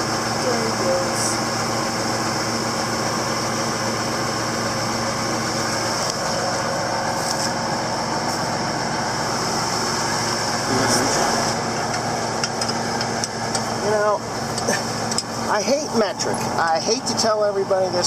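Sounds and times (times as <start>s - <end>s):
tractor engine idling: 0.0s - 18.0s.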